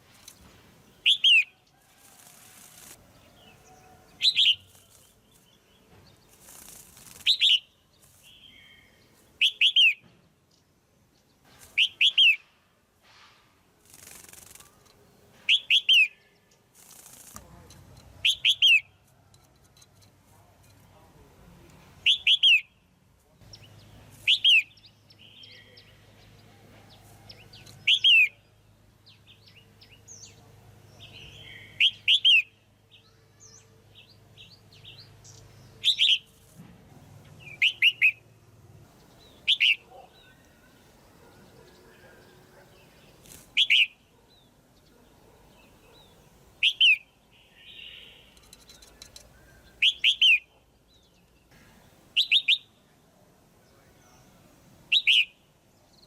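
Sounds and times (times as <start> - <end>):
soft bird chirps: 0.0 - 36.6, 37.2 - 56.0.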